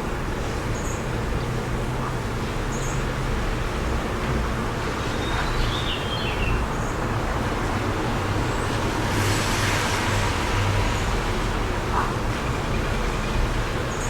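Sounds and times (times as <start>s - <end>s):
traffic noise with low rumble: 0.0s - 14.0s
wind: 0.0s - 14.0s
car passing: 7.1s - 13.8s.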